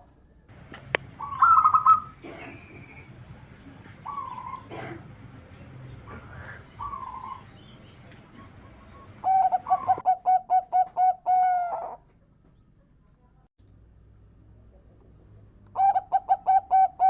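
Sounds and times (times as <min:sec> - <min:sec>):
dove cooing: 0:00.5 - 0:12.1, 0:15.7 - 0:17.0.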